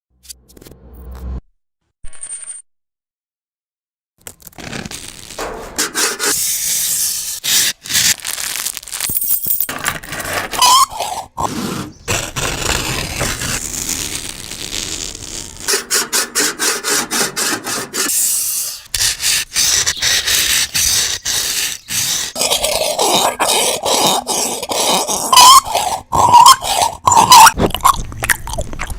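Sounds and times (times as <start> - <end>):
harsh scraping and rubbing: 4.6 - 8.6, 9.7 - 24.7
short squeal: 10.5 - 11.3.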